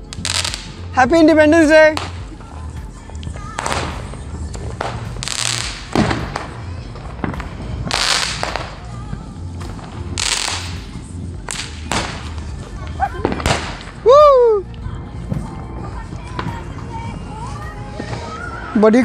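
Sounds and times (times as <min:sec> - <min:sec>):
background music with low beat: 0:00.0 - 0:19.0
fireworks crackling: 0:00.0 - 0:19.0
firework sharp pop: 0:04.8 - 0:06.6, 0:13.2 - 0:14.0.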